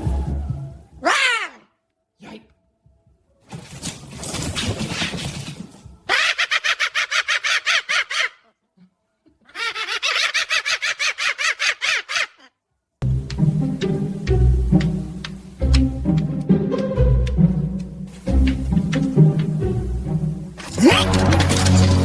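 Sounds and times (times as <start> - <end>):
cockatoo screeching: 1.0 - 1.7, 6.1 - 8.5, 9.5 - 12.5
cockatoo cackling laughter: 6.1 - 8.6, 9.4 - 12.5.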